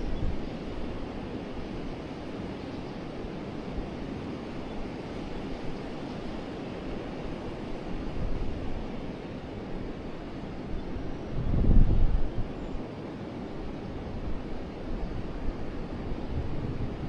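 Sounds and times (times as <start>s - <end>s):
wind rumble on microphone: 0.0s - 2.6s, 7.7s - 12.9s, 14.0s - 17.0s.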